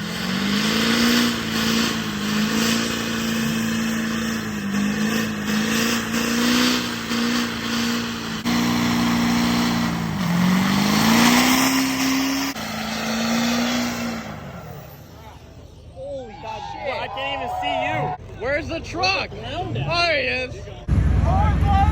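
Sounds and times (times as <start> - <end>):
truck engine at high revs: 0.0 - 16.0.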